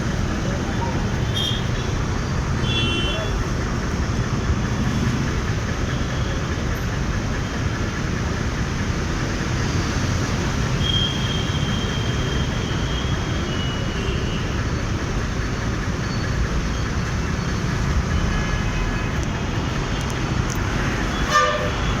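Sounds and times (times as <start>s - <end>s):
motorcycle engine: 0.0s - 20.6s
road rumble: 0.0s - 22.0s
wind: 0.0s - 22.0s
vehicle horn honk: 21.2s - 21.9s.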